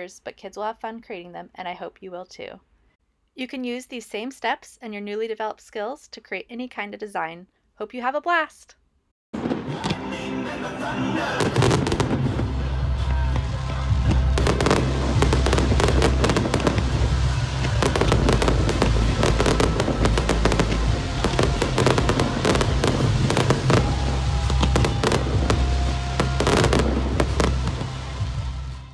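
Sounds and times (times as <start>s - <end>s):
fireworks bursting and crackling: 11.4s - 28.9s.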